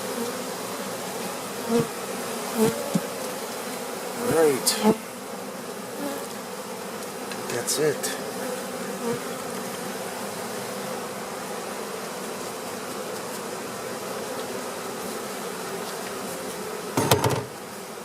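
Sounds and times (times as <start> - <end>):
honey bees buzzing: 0.0 - 18.0
loud clatter of knocks: 17.0 - 17.6.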